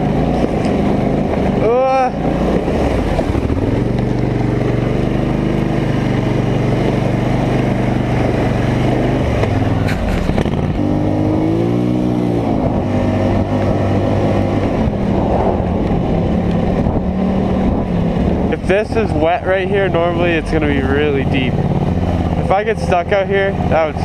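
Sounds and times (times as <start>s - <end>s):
atv engine revving: 0.0s - 24.0s.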